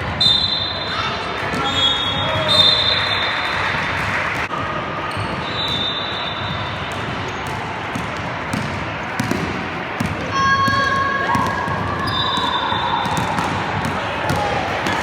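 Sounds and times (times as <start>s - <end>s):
sports hall noise: 0.0s - 15.0s
basketballs bouncing on gym floor: 5.1s - 15.0s.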